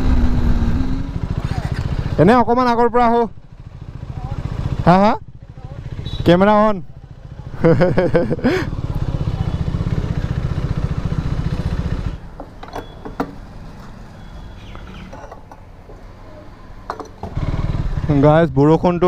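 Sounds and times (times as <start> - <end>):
motorcycle engine running: 0.0 - 13.0, 17.2 - 18.5.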